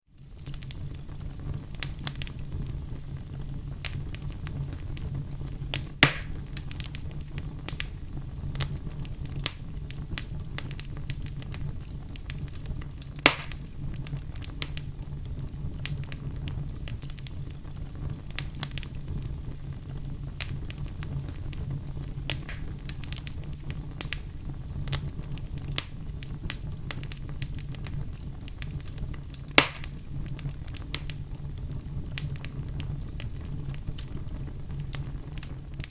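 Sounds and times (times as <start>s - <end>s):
campfire crackling: 0.1s - 35.9s
sharp pops from burning wood: 0.2s - 35.9s.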